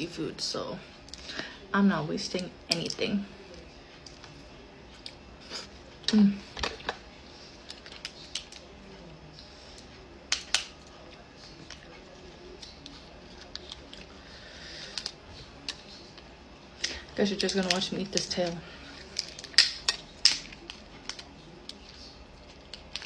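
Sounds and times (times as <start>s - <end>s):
lobster shell cracking: 10.3s - 10.8s, 19.0s - 21.8s.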